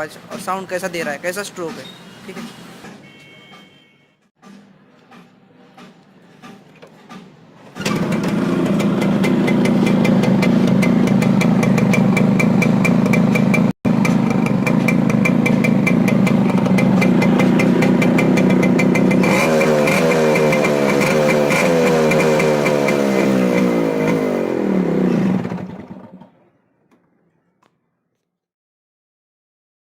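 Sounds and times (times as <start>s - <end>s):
two-stroke motorcycle engine revving: 7.8s - 26.4s.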